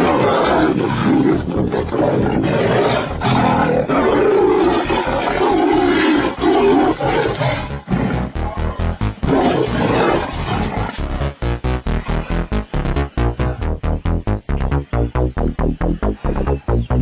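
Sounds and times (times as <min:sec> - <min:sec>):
big cat roaring: 0:00.0 - 0:08.2.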